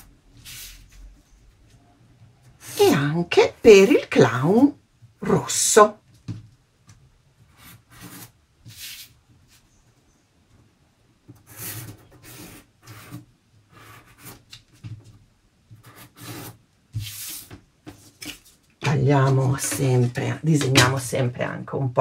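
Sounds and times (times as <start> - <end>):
pencil scratching on card: 7.5 - 9.2, 11.4 - 14.5, 15.8 - 17.5.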